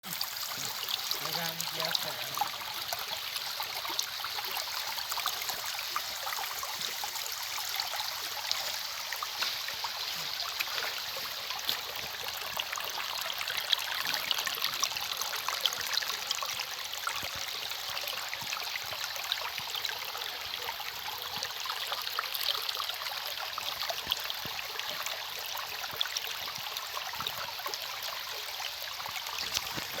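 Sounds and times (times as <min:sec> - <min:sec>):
water trickling and splashing: 0:00.0 - 0:30.0.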